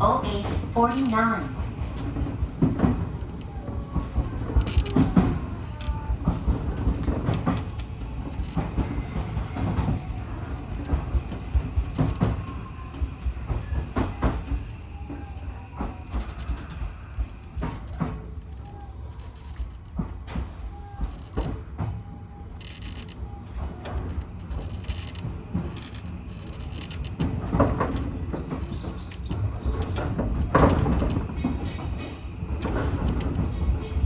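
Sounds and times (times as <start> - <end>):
wheels rumbling on rail: 0.0 - 34.0.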